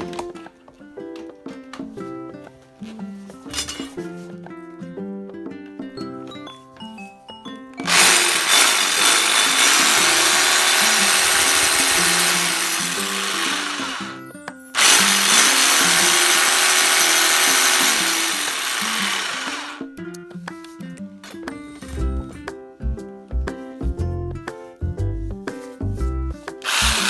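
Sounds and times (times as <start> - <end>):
background music: 0.0 - 27.0
cordless power drill running: 7.8 - 19.8, 26.6 - 27.0.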